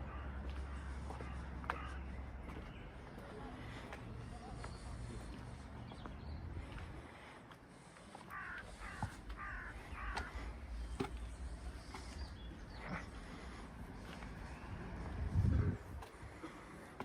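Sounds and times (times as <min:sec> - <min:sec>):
bird calling: 0:00.0 - 0:07.3, 0:07.9 - 0:14.7.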